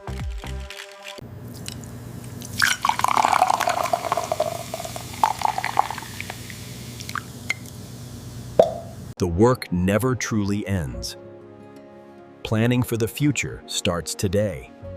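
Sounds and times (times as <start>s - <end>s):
background music: 0.0s - 1.2s, 9.2s - 14.9s
drink being mixed: 0.0s - 7.3s.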